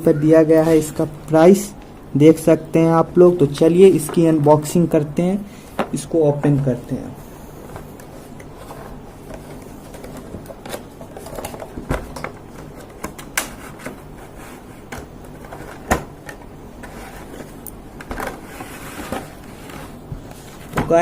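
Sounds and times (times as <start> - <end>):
packaging clicks and rustles: 7.8 - 21.0.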